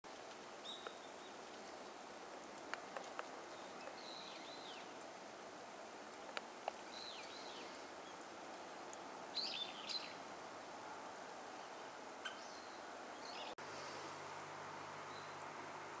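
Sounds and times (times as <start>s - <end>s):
steady outdoor hiss: 0.1s - 16.0s
bird calls: 11.6s - 13.6s.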